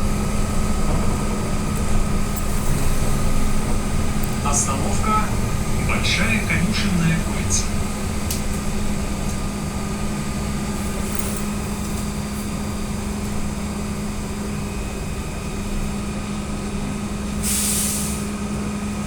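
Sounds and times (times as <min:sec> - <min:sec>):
vehicle running noise: 0:00.0 - 0:19.0
air hiss: 0:17.4 - 0:18.3.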